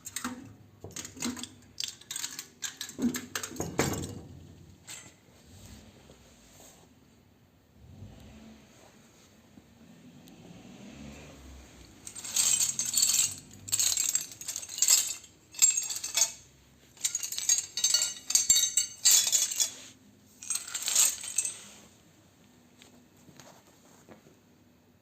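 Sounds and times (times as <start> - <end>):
scrap metal clinking: 11.7 - 22.0.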